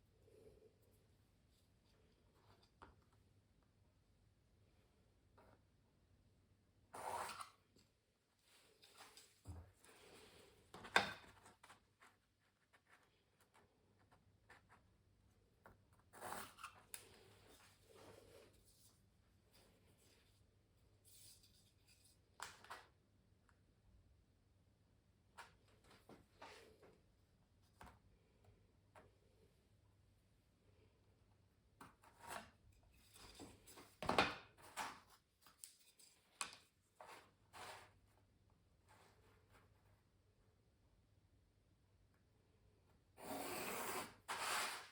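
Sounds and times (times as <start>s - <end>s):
pencil scratching on canvas: 43.2s - 44.9s.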